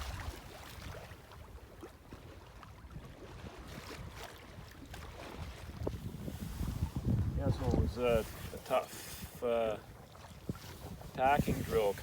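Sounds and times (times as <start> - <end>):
water washing along hull: 0.0 - 12.0
wind buffeting microphone: 2.9 - 12.0.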